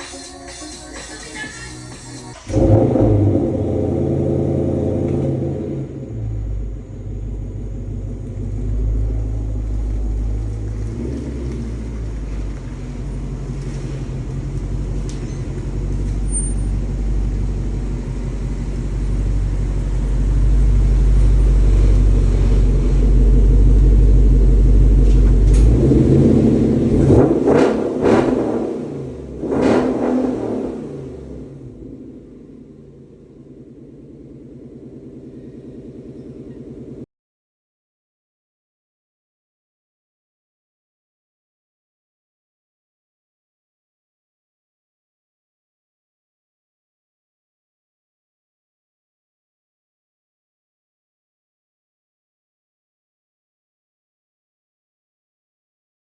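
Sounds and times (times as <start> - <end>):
car engine accelerating: 0.0 - 37.1.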